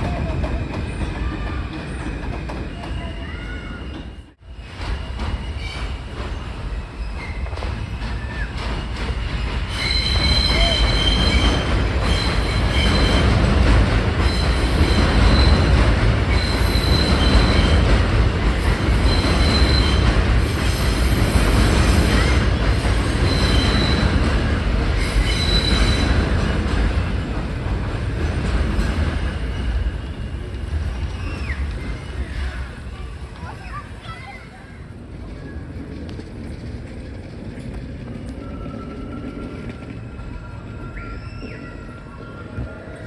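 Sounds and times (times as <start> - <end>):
subway train rumbling on rails: 0.0 - 43.0
wheels squealing on track: 0.6 - 13.5, 30.8 - 43.0.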